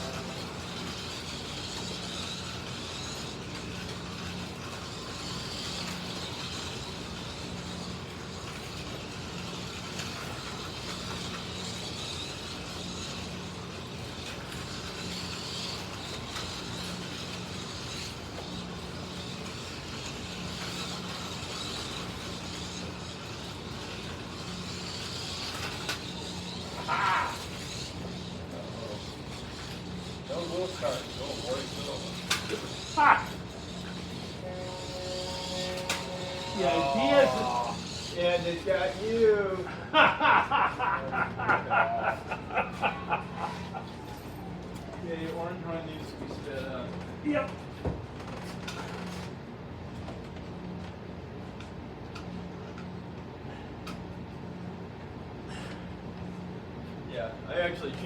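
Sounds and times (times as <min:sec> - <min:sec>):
slot cars buzzing whine: 0:00.0 - 0:58.0
short high-pitched sound: 0:34.4 - 0:37.7.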